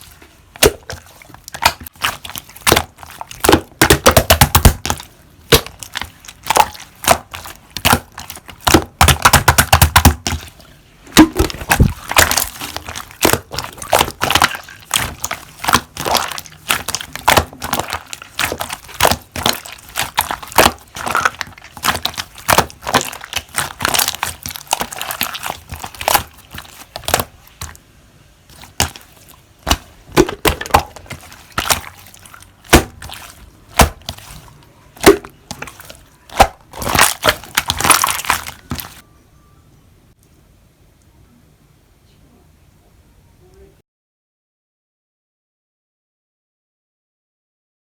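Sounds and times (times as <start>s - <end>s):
slime squeezed by hand crackling: 11.2s - 27.8s, 28.5s - 39.0s.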